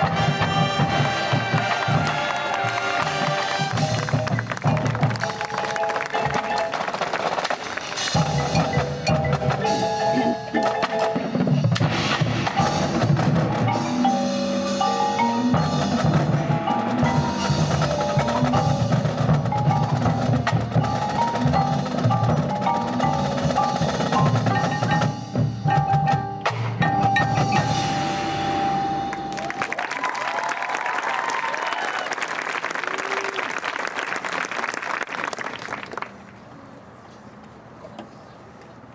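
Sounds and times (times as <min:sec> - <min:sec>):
mallet percussion notes: 0:00.0 - 0:07.0, 0:07.8 - 0:29.8
drumline strokes: 0:00.0 - 0:36.4.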